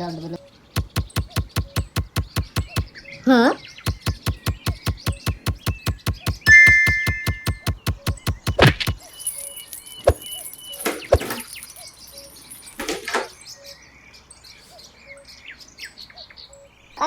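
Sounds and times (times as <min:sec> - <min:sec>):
bird chirps: 0:00.0 - 0:17.0
fast run of clicks: 0:00.8 - 0:03.0, 0:03.8 - 0:13.4
insects buzzing: 0:00.8 - 0:03.0, 0:03.9 - 0:13.4.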